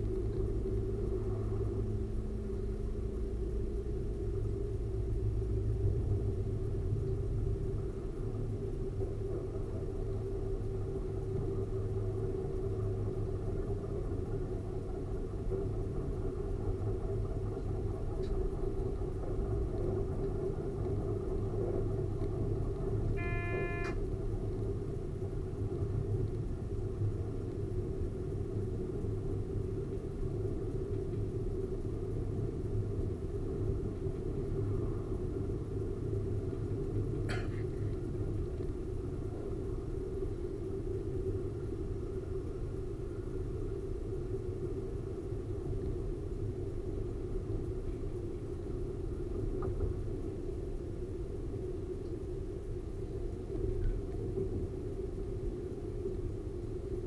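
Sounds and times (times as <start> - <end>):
train wheels rumbling on rails: 0.0 - 23.2
short pitched tone: 23.2 - 24.0.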